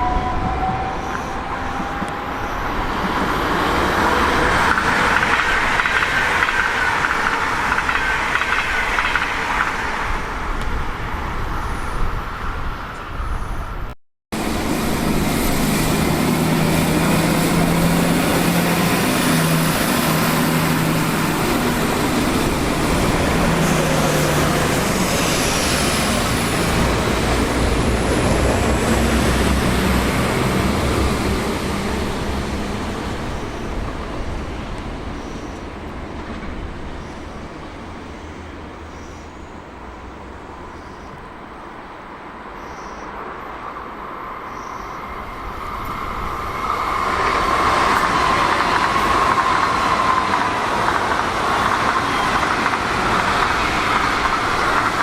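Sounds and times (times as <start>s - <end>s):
train passing with low hum: 0.0s - 55.0s.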